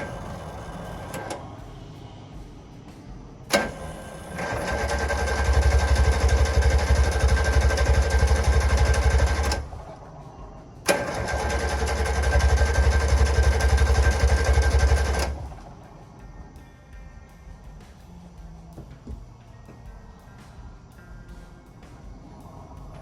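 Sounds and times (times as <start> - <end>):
starter cranking engine: 0.0 - 2.0, 3.5 - 15.9.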